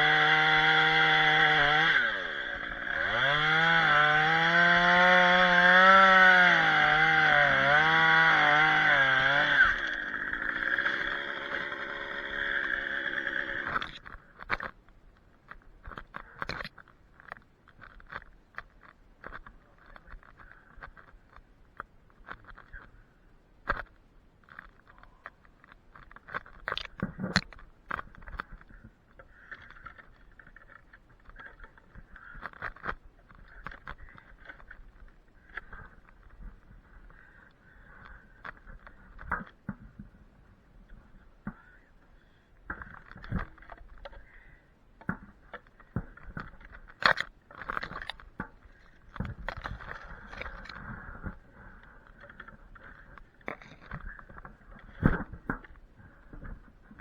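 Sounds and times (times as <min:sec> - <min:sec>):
chainsaw cutting: 0:00.0 - 0:14.7, 0:45.6 - 0:51.1.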